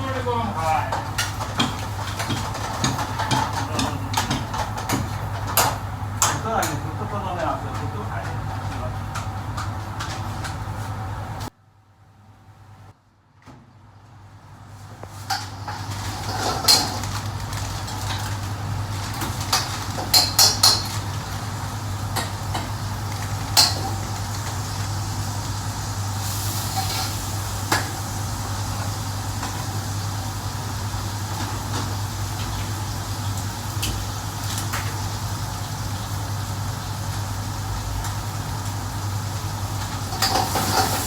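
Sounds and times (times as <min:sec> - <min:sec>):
metal pots and pans clattering: 0:00.8 - 0:06.8, 0:15.3 - 0:18.4, 0:19.0 - 0:21.2, 0:40.1 - 0:41.0.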